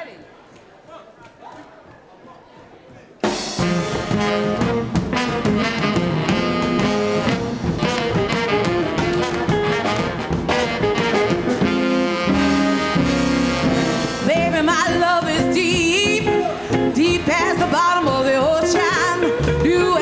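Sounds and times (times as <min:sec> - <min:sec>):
live rhythm and blues band: 0:03.2 - 0:20.0
saxophone and horn lines: 0:03.2 - 0:20.0.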